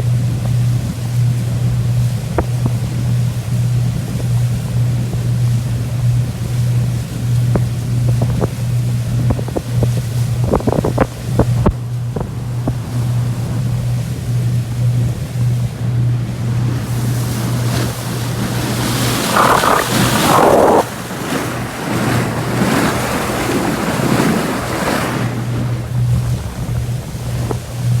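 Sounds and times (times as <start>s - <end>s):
boat engine hum: 0.0s - 28.0s
wind buffeting microphone: 0.0s - 28.0s
rushing water: 9.7s - 28.0s
surge of noise: 16.8s - 21.7s.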